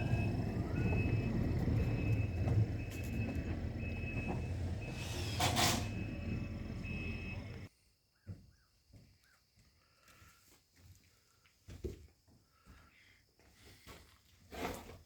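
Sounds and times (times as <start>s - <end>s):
backup alarm beeping: 0.0s - 7.7s
machine engine running: 0.0s - 7.7s.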